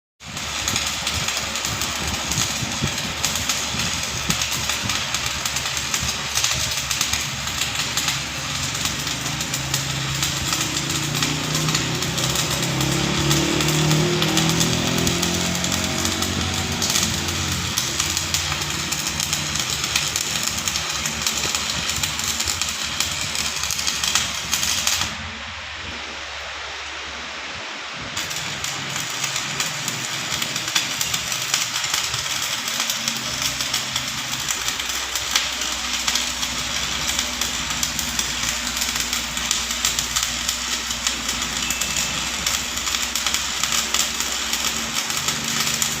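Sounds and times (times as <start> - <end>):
arc welding crackling: 0.2 - 46.0
low machine hum: 1.1 - 31.4.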